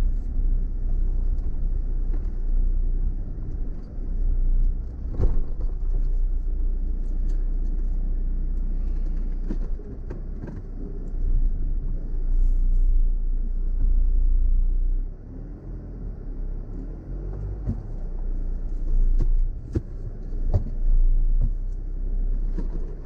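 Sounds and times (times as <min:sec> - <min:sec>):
vehicle rumbling on rough track: 0:00.0 - 0:23.0
vehicle knocks and jolts: 0:04.9 - 0:06.0.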